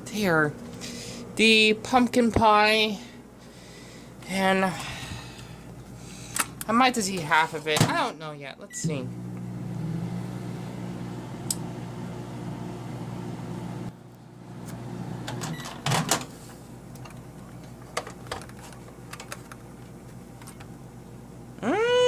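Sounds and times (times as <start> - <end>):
microwave oven humming: 0.0 - 7.0, 7.8 - 21.8.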